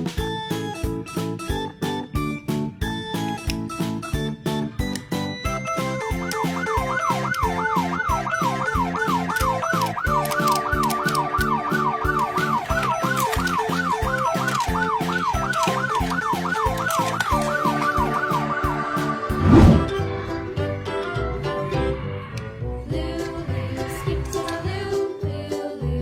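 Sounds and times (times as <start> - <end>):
background music with steady beat: 0.0 - 26.0
warbling emergency siren: 6.1 - 19.9.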